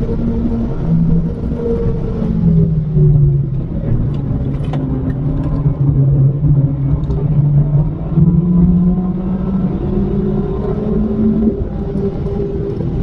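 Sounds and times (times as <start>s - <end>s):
car engine under load: 0.0s - 13.0s
tyre and road noise: 0.0s - 13.0s.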